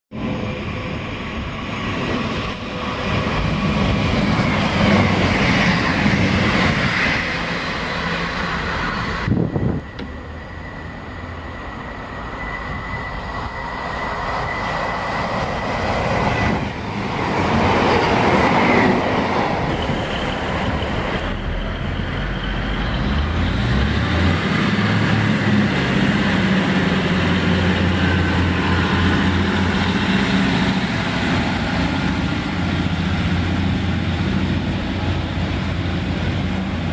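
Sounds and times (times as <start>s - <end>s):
train wheels rumbling on rails: 0.1s - 36.9s
thin steady squeal: 7.0s - 16.6s
low diesel engine: 18.3s - 36.9s.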